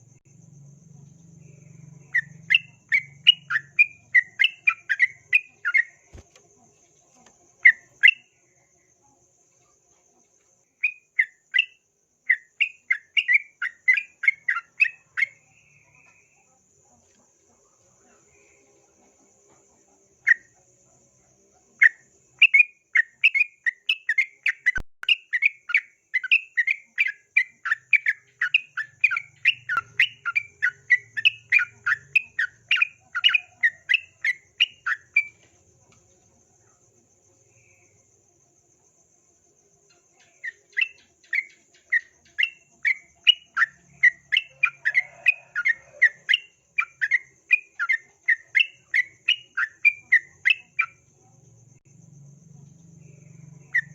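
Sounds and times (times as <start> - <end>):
faint high-pitched drone: 0.0 - 6.2
bird chirping song: 0.0 - 38.2, 39.8 - 53.9.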